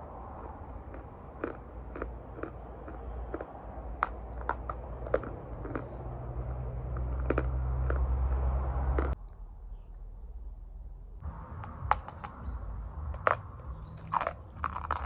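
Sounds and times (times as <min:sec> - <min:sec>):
low rumble: 0:00.0 - 0:15.0
crunching chalk: 0:00.3 - 0:06.1, 0:06.9 - 0:09.2, 0:13.1 - 0:15.0.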